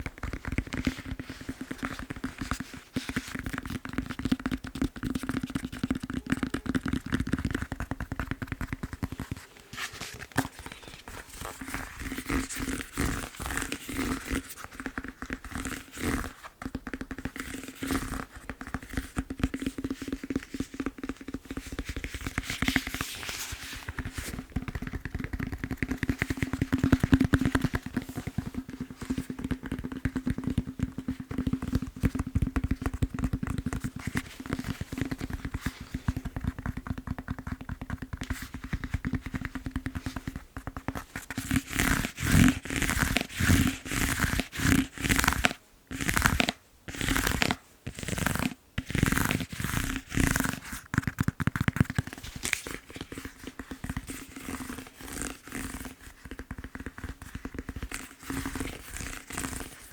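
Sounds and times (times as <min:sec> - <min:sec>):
tapping on foam roller: 0:00.0 - 0:09.4, 0:14.8 - 0:23.2, 0:23.9 - 0:49.4
strokes on foam roller: 0:00.0 - 0:59.9.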